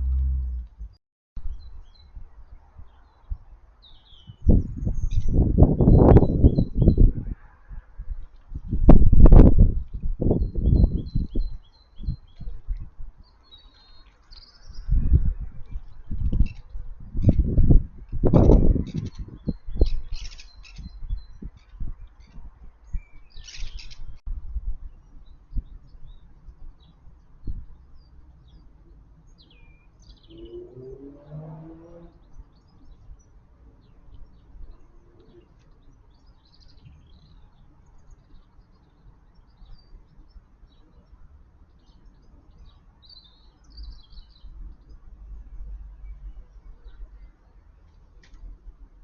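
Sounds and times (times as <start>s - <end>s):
small birds chirping: 0.0s - 7.3s, 8.1s - 30.7s, 32.0s - 48.5s
low-pitched bird call: 30.1s - 32.2s.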